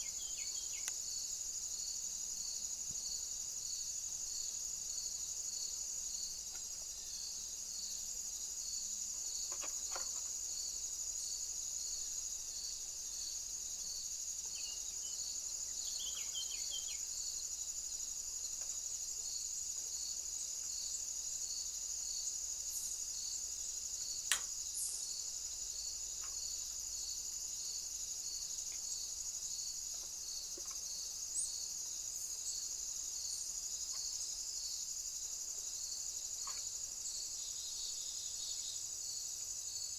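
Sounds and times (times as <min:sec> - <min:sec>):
bird chirps: 0:00.0 - 0:00.9, 0:14.5 - 0:17.1
pulsed insect chirp: 0:00.0 - 0:02.6, 0:05.0 - 0:19.5
insects chirring: 0:00.0 - 0:39.9
sharp click: 0:24.3 - 0:24.5.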